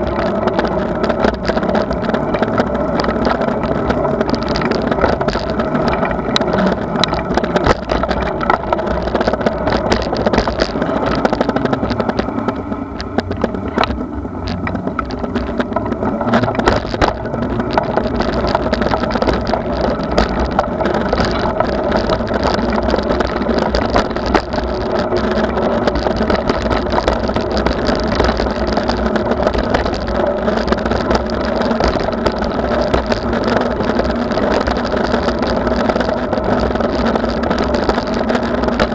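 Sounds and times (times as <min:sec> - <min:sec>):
bicycle rolling noise: 0:00.0 - 0:38.9
clicks and rattles: 0:00.0 - 0:38.9
wind rumble: 0:00.0 - 0:38.9.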